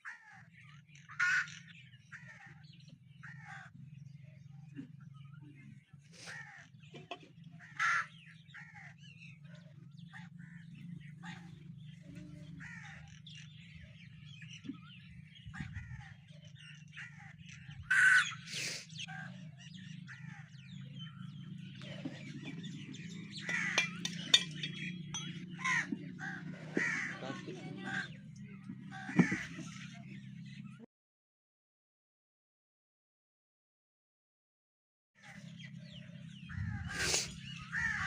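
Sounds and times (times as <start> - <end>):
loud harsh bird calls: 0.0 - 30.8, 35.2 - 38.0
birds calling: 0.0 - 30.9, 35.2 - 38.0
steady low hum: 35.6 - 38.0.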